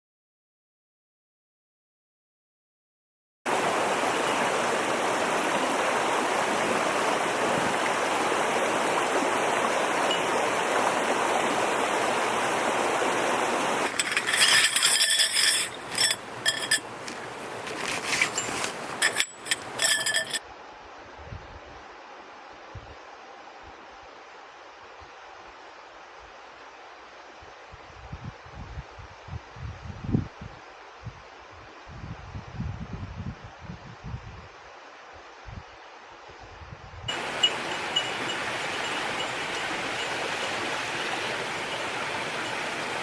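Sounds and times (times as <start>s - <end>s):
bright ringing clinks: 13.9s - 16.9s, 18.2s - 20.4s, 37.1s - 40.6s
steady rushing hiss: 37.1s - 43.0s.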